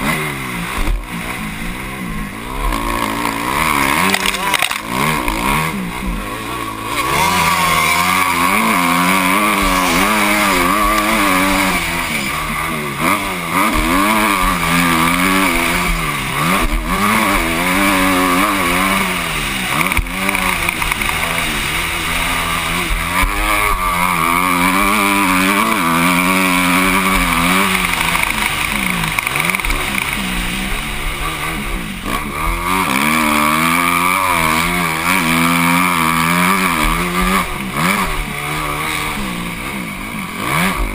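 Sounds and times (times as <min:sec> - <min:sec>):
steady rush of noise: 0:00.0 - 0:32.6
motocross bike engine revving: 0:00.0 - 0:40.9.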